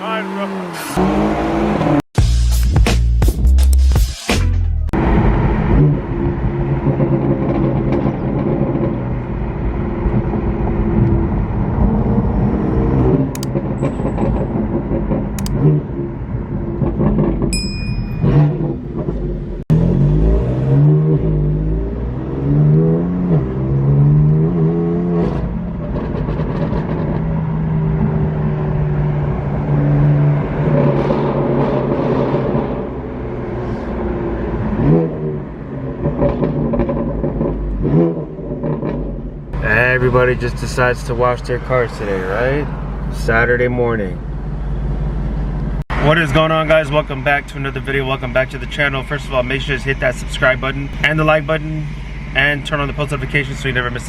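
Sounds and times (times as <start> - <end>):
car engines idling and revving: 0.0 - 2.4, 3.8 - 54.0
high-pitched beep: 17.5 - 18.7.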